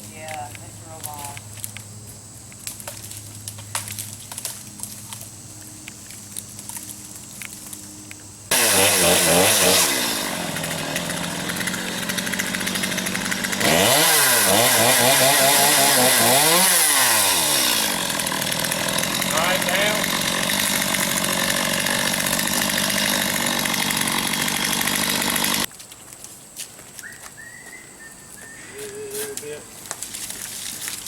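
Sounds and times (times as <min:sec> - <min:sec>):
chainsaw revving and cutting: 0:08.5 - 0:25.7.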